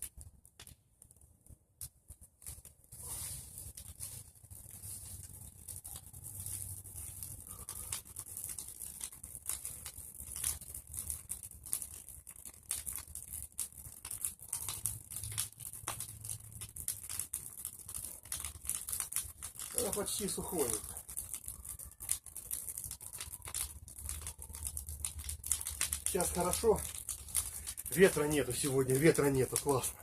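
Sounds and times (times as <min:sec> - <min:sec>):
bonfire crackling: 0:00.0 - 0:30.0
sharp pops: 0:00.0 - 0:30.0
fire hiss: 0:02.4 - 0:11.0, 0:18.1 - 0:21.2, 0:23.4 - 0:30.0.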